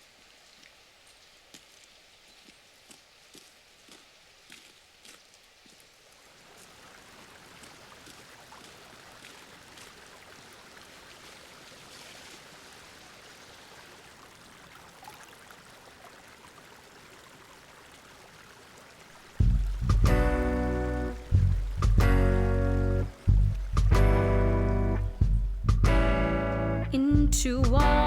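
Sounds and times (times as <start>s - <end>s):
faint ambient hiss: 10.2s - 27.1s.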